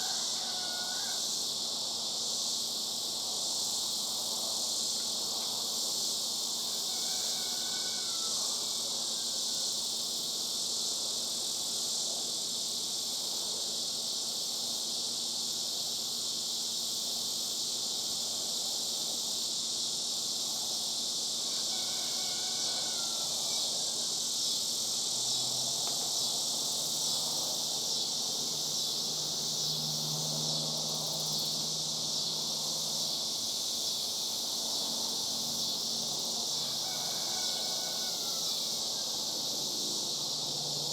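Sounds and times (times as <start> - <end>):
cicadas droning: 0.0 - 40.9.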